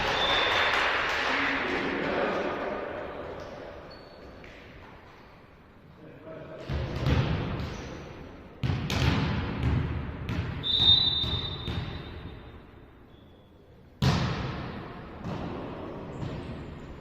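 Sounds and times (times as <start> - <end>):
volleyball smacks echoing: 8.6 - 12.1, 14.0 - 16.5
referee's whistle: 10.6 - 12.3.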